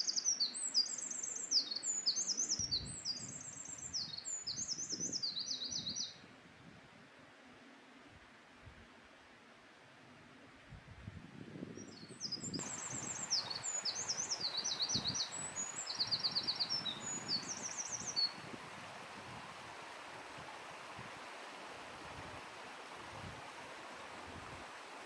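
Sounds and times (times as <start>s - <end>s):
wren singing trills: 0.0s - 6.1s, 11.8s - 18.4s
steady background hiss: 12.6s - 25.0s.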